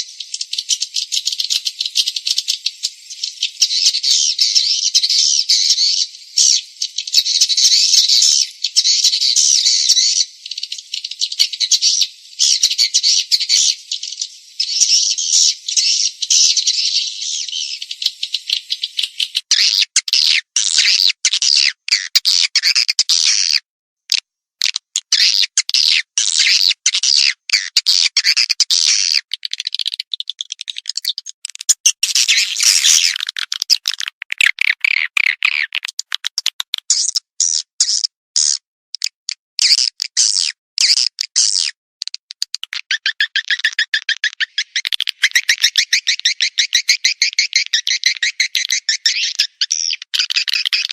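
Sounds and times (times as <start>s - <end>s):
swiftlets chirping and twittering: 0.0s - 21.1s, 28.0s - 37.6s, 42.5s - 50.9s.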